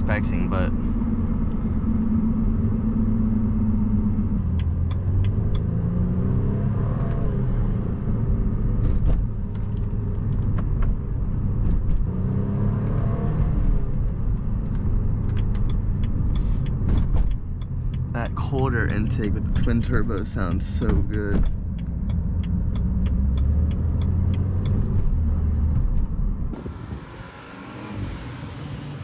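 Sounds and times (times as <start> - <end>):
car engine revving: 0.0 - 29.0
road rumble: 0.0 - 29.0
ticks: 4.5 - 5.7, 15.2 - 24.9.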